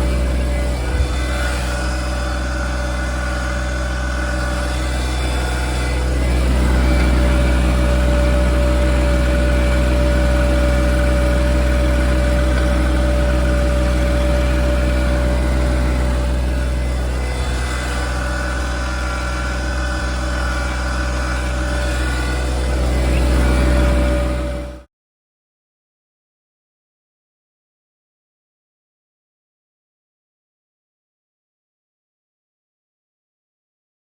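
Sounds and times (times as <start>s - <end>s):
steady whine: 0.0s - 24.8s
tractor diesel engine running: 0.0s - 24.9s.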